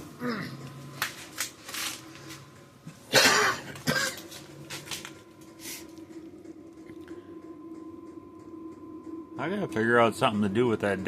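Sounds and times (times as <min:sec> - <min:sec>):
faint low hum: 0:00.0 - 0:11.0
man clearing throat: 0:03.1 - 0:04.3
man coughing: 0:03.1 - 0:04.4.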